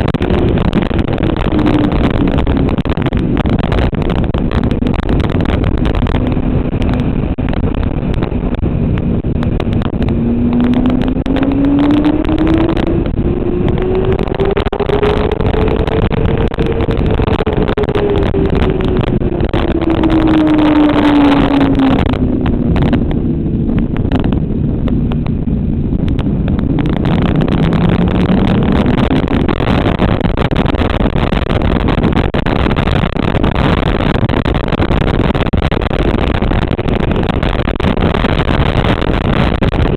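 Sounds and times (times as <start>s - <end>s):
motorcycle engine at speed: 0.0s - 39.9s
steady rushing noise: 0.0s - 39.9s.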